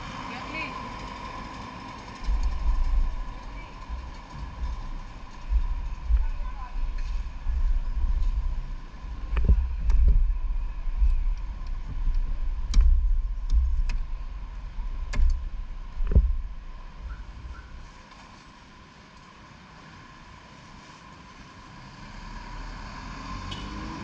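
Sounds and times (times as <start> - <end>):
motorcycle engine rumble: 0.0 - 18.0
faint steady whine: 0.0 - 22.0.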